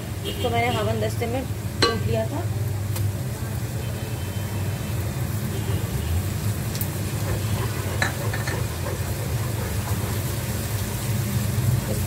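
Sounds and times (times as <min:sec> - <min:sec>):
onions frying in oil: 0:00.0 - 0:12.0
wooden spoon knocking pot: 0:01.8 - 0:02.3.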